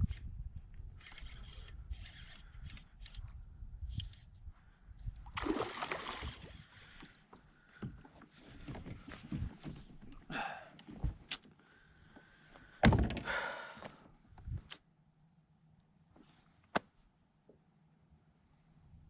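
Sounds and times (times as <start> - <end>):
water splashing around kayak: 5.3 - 7.1.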